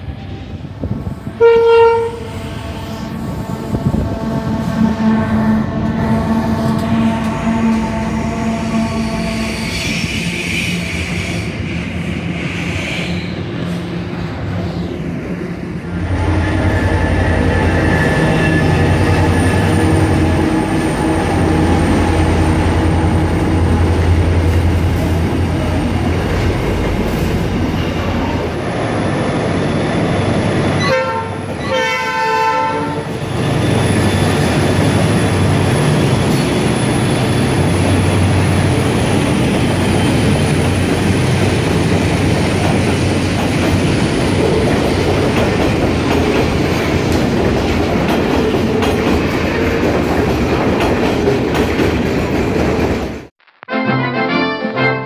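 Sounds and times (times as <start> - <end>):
diesel locomotive passing: 0.0 - 53.3
freight train rumbling and clattering: 0.0 - 53.3
train horn blasts: 1.3 - 10.6, 30.8 - 33.2.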